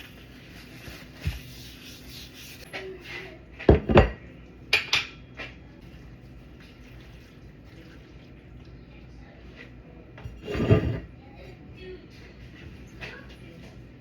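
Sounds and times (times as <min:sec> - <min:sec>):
dishes and utensils clattering: 0:02.6 - 0:05.6, 0:09.6 - 0:11.2.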